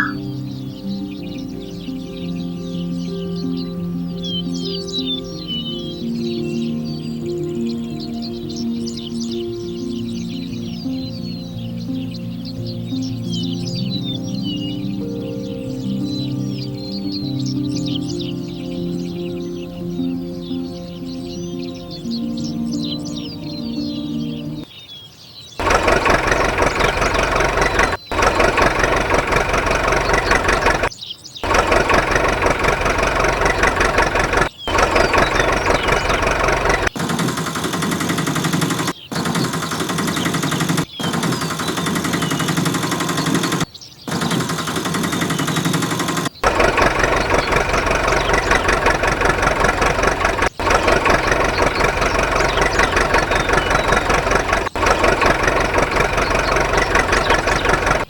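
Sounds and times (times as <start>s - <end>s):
engine knocking chug: 25.6s - 58.0s.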